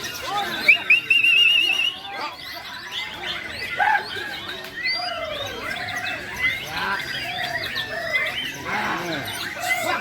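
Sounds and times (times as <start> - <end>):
songbirds singing whistles: 0.0 - 10.0.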